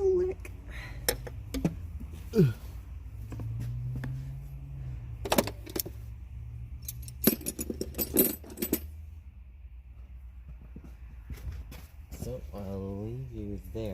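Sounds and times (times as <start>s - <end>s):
metallic jingling and clinking: 6.7s - 9.0s.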